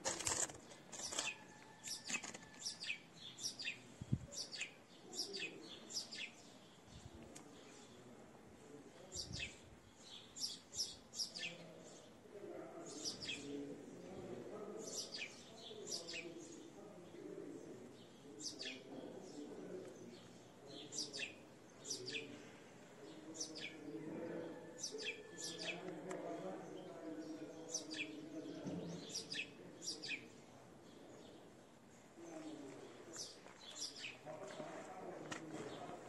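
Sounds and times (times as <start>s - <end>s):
low background murmur: 0.0s - 36.0s.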